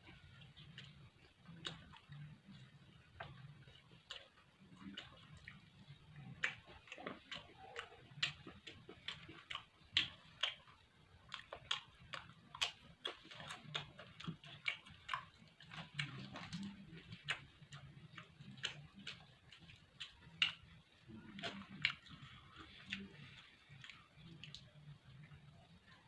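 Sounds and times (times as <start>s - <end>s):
person chewing: 0.1s - 25.5s
wet mouth clicks and smacks: 0.6s - 2.3s, 6.2s - 24.7s.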